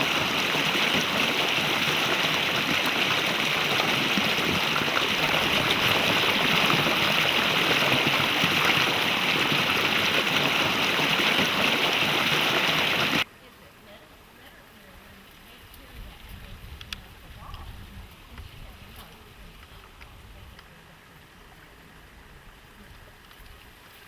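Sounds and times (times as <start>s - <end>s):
mountain stream rushing: 0.0s - 13.2s.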